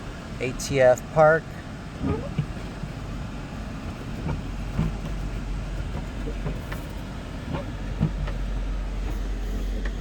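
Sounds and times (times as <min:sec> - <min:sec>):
car engine idling: 0:00.0 - 0:10.0
light clicks and knocks: 0:04.2 - 0:10.0.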